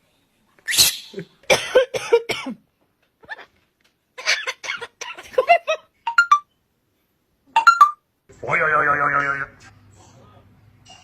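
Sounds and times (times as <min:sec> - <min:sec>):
person coughing: 0:01.5 - 0:02.6.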